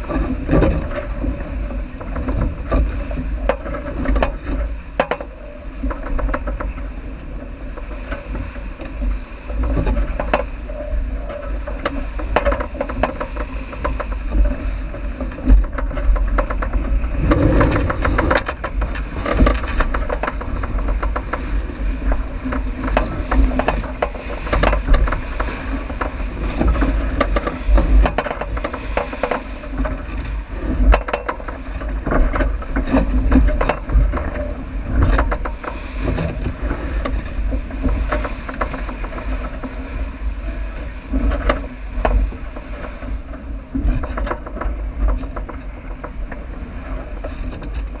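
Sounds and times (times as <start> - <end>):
water noise: 0.0 - 48.0
wind rumbling on microphone: 0.0 - 48.0.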